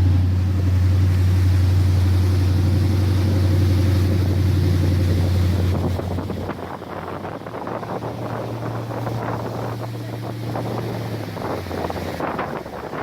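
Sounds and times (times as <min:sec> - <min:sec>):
motorboat engine running: 0:00.0 - 0:13.0.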